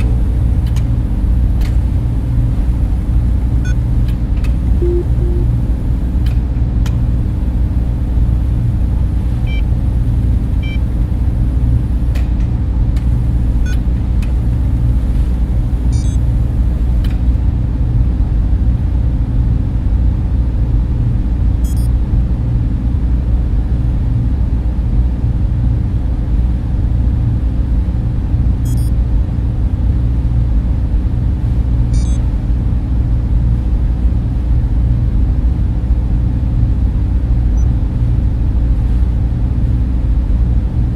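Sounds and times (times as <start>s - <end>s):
server fans rumbling: 0.0s - 40.9s.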